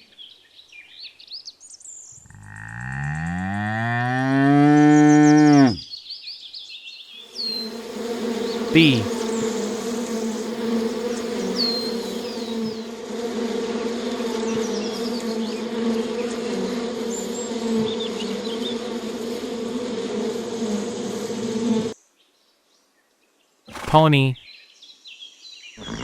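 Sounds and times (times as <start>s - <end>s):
bees buzzing: 7.4s - 21.9s, 25.8s - 26.0s
birds chirping: 25.8s - 26.0s.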